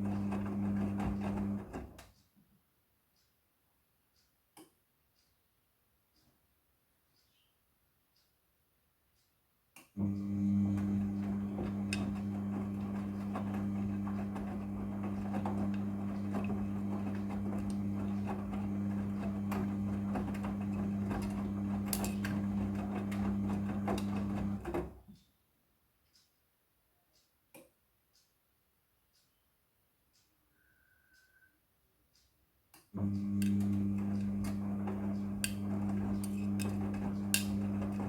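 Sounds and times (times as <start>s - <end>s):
washing machine humming: 0.0s - 2.0s, 10.0s - 25.1s, 33.0s - 38.0s.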